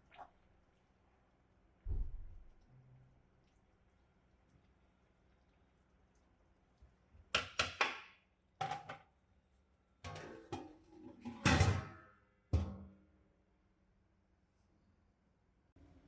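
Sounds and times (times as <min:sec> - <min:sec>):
metal pots and lids clanking: 0:08.6 - 0:09.0, 0:10.1 - 0:12.9.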